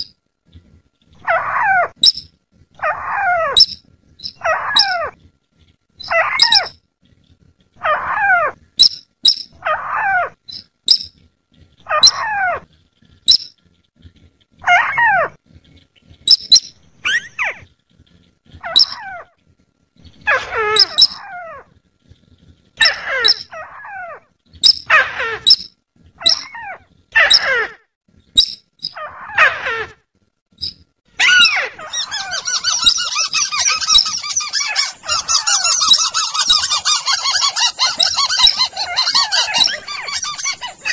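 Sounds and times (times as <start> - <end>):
harsh chattering bird call: 6.0 - 6.7, 30.6 - 40.9.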